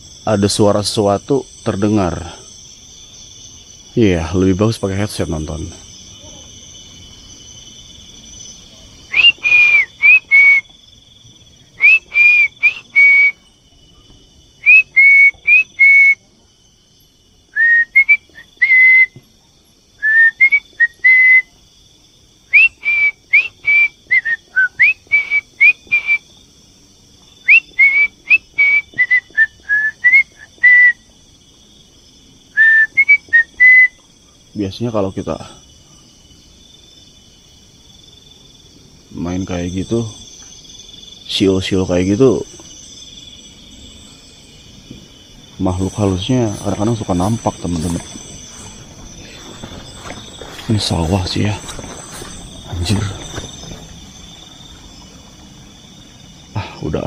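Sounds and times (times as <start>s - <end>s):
person whistling short phrases: 9.1s - 10.6s, 11.8s - 13.4s, 14.6s - 16.2s, 17.6s - 19.2s, 20.0s - 21.5s, 22.6s - 26.2s, 27.5s - 31.0s, 32.6s - 34.0s.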